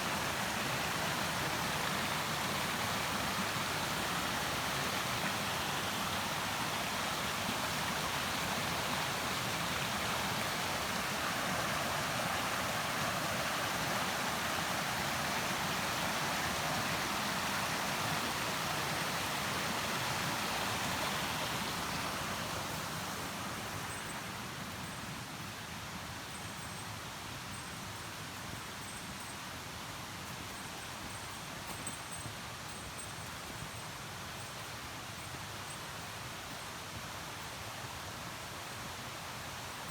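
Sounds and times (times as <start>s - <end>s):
stream rushing over rocks: 0.0s - 24.9s.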